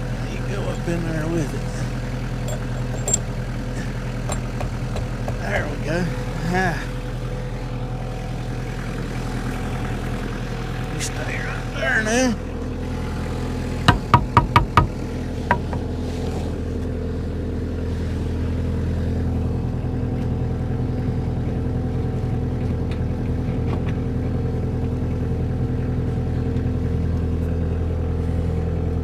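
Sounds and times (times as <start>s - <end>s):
engine idling: 0.0s - 29.0s
sharp knocks: 13.9s - 15.8s.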